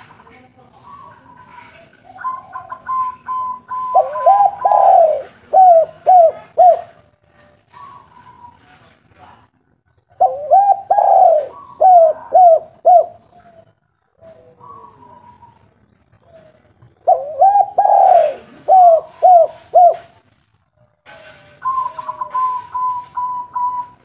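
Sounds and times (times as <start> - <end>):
dove cooing: 0.8 - 7.0, 10.1 - 20.1, 21.6 - 24.0.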